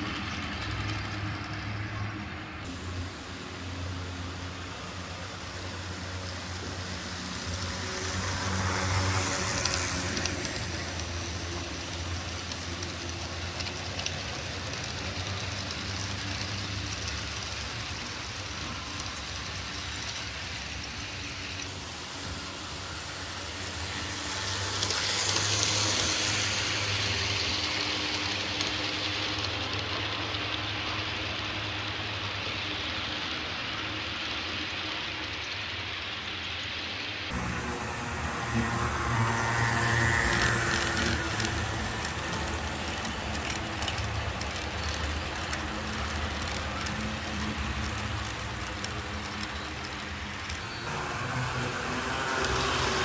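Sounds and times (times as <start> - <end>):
model train motor hum: 0.0 - 53.0
small wheels rattling on rail: 0.0 - 53.0.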